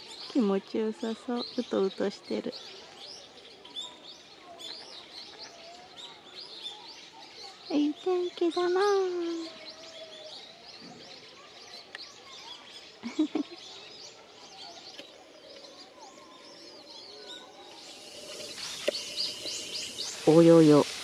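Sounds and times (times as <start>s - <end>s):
small birds chirping: 0.0s - 21.0s
steady hiss: 17.6s - 21.0s.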